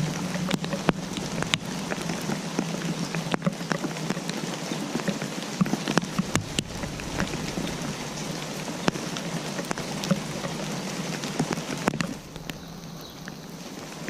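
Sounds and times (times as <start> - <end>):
raindrops ticking: 0.0 - 14.0
steady rain: 0.0 - 14.0.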